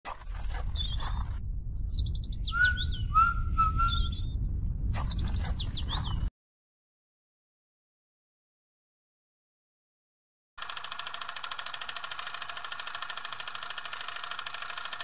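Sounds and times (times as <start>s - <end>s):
birds chirping and whistling: 0.1s - 6.3s
steady low rumble: 0.7s - 6.3s.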